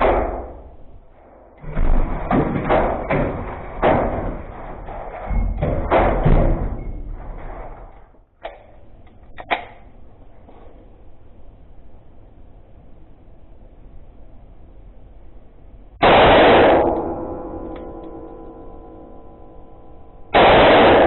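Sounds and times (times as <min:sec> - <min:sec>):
pistol shots: 0:16.0 - 0:17.4, 0:20.4 - 0:21.0.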